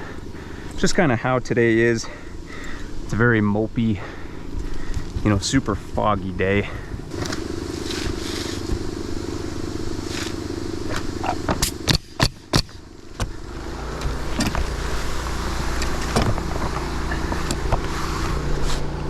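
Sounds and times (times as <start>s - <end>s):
motor running: 2.0s - 3.2s, 6.6s - 19.0s.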